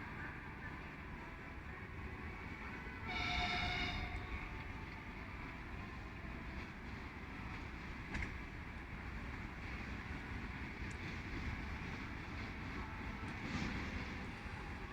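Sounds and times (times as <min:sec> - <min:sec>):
locomotive horn: 0:03.0 - 0:04.8.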